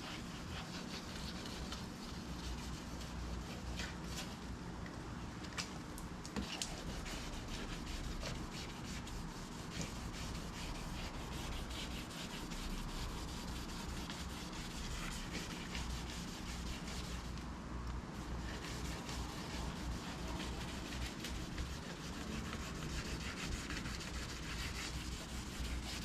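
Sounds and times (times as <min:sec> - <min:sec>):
wet sandpaper rubbing: 0:06.6 - 0:17.3, 0:18.4 - 0:26.0.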